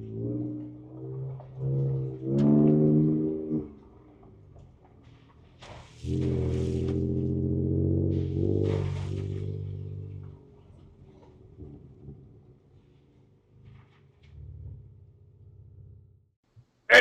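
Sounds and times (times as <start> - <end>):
truck engine throttle surges: 0.0 - 16.3.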